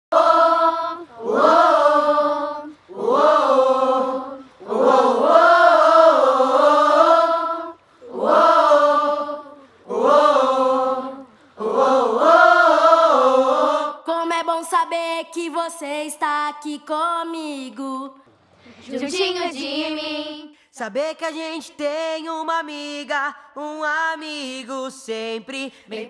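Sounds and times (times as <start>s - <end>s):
high voices singing wordlessly: 0.1s - 17.0s, 18.6s - 20.9s.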